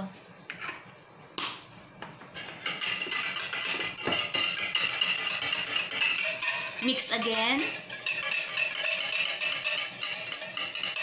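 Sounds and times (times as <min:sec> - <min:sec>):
wire whisk beating in bowl: 0:02.4 - 0:11.0.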